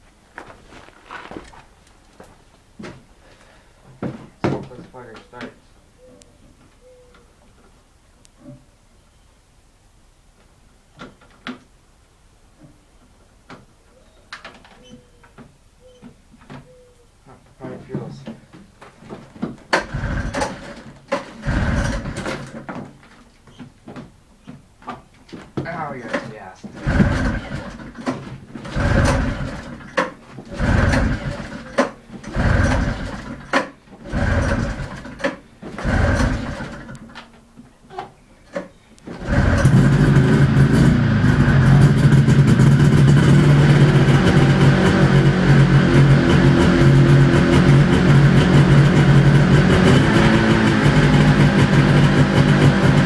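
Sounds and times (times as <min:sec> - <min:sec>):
recoil starter pulls: 0:19.1 - 0:23.7, 0:25.6 - 0:37.4, 0:38.5 - 0:53.0
two-stroke engine cranking: 0:19.4 - 0:22.8, 0:26.0 - 0:37.3, 0:39.1 - 0:53.0.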